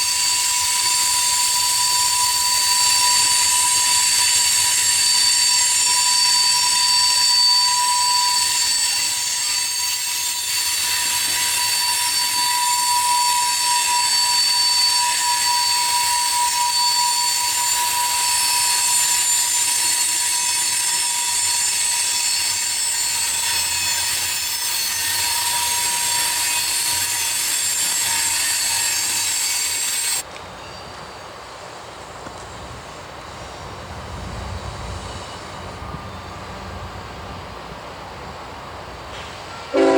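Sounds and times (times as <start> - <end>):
train wheels squealing on rails: 0.0 - 39.9.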